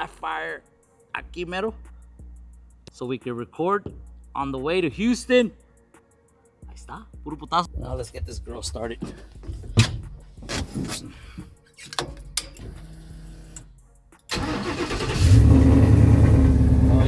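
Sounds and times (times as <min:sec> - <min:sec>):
truck engine cranking and running: 0:14.3 - 0:17.0.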